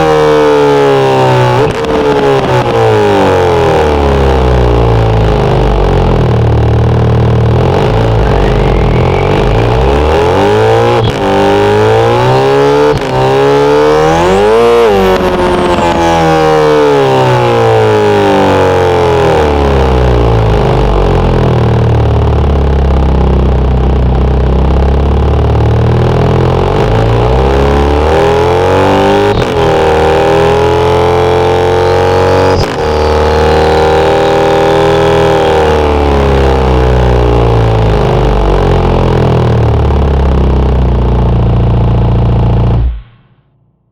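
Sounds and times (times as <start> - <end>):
synthesized car engine revving: 0.0 - 43.9
thin high whine: 5.5 - 19.6, 28.5 - 36.6.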